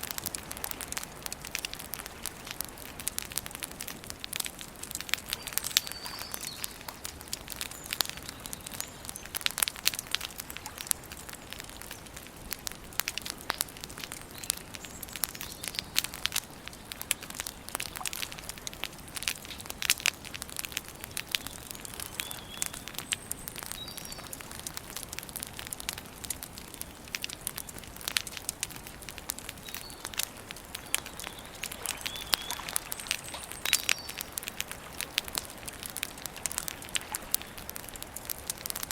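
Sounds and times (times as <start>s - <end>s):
campfire crackling and popping: 0.0s - 38.9s
faint bird chirps: 5.3s - 7.0s, 21.1s - 24.4s, 30.8s - 34.3s.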